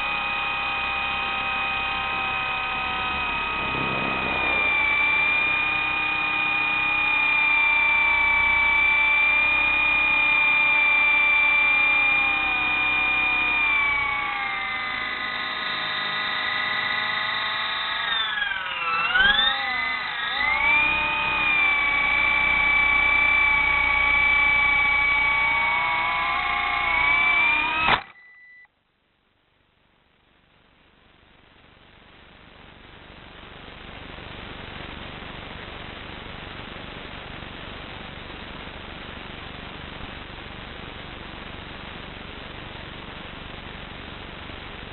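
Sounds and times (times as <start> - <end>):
model helicopter motor whining: 0.0 - 28.2.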